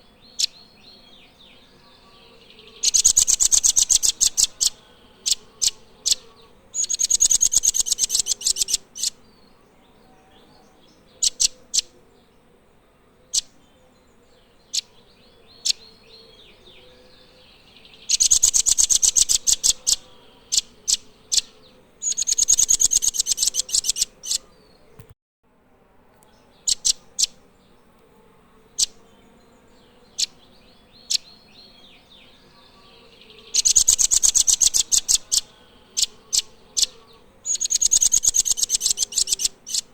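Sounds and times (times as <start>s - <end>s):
bird trilling: 2.7s - 9.2s, 11.2s - 11.9s, 18.0s - 24.5s, 26.7s - 27.4s, 33.4s - 39.9s
bird chips: 6.8s - 9.1s, 22.0s - 24.4s, 37.5s - 39.9s.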